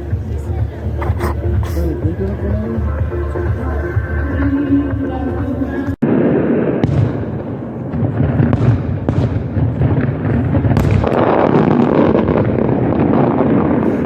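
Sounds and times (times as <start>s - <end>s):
fireworks booming: 0.0s - 14.0s
fireworks crackling: 0.0s - 14.0s.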